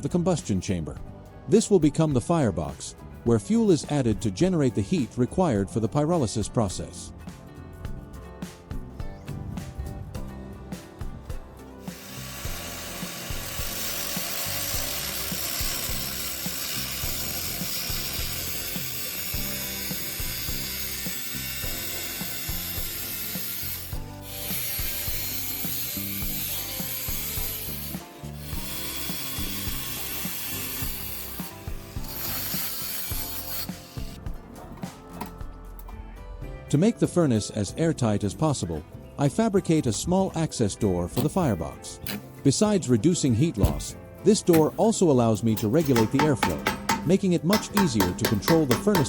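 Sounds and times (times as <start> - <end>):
background music: 0.0 - 49.0
harsh rasping hiss of cutting: 11.8 - 34.2.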